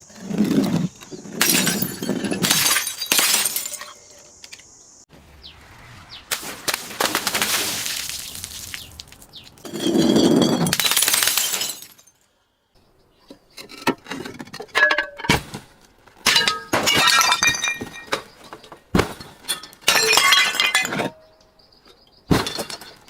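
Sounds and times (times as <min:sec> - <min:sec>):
glass crunching and clinking: 0:01.2 - 0:04.0, 0:06.3 - 0:12.2, 0:16.2 - 0:21.3, 0:22.3 - 0:23.0
glass bottles smashing: 0:01.4 - 0:04.0, 0:06.3 - 0:12.2, 0:16.3 - 0:18.4, 0:19.2 - 0:21.2.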